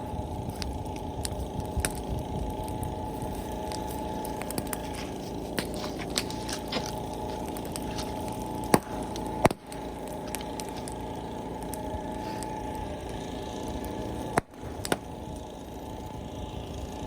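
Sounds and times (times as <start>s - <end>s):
bonfire burning rumble: 0.0s - 17.0s
fire crackling: 0.0s - 17.0s
loud sharp pops: 5.6s - 11.0s, 14.3s - 15.1s.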